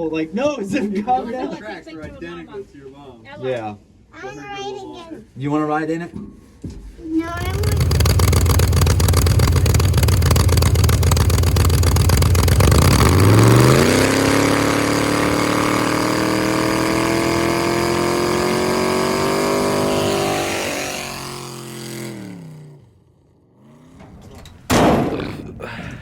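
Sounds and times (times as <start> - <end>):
race truck engine revving: 7.2 - 22.9.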